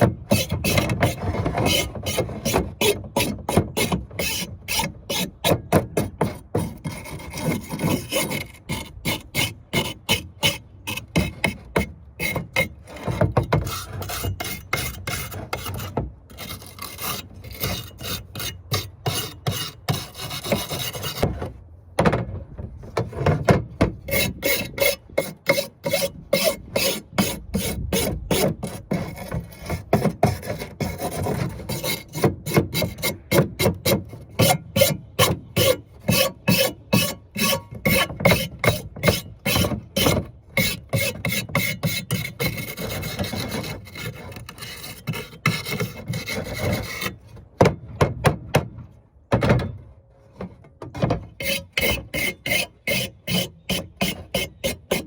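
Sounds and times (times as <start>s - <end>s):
brush scrubbing metal burners: 24.0s - 47.4s, 51.3s - 55.0s.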